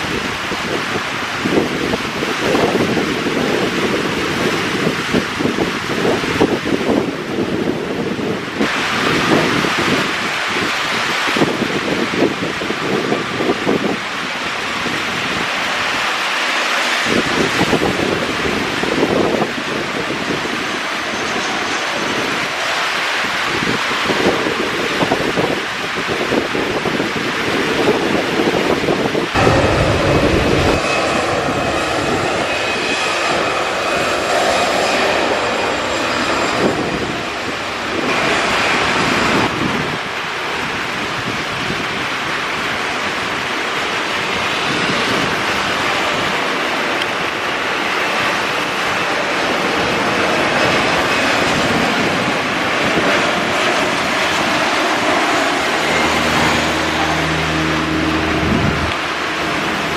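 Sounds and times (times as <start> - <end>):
jet engines roaring: 0.0 - 59.9.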